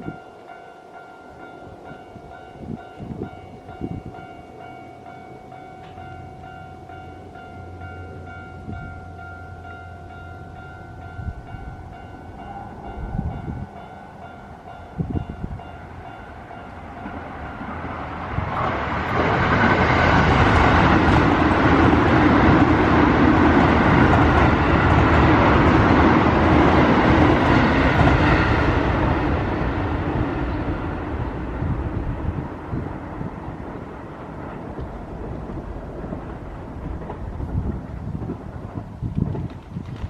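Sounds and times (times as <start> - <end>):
crossing warning bell ringing: 0.0 - 37.5
electric train passing: 0.0 - 40.0.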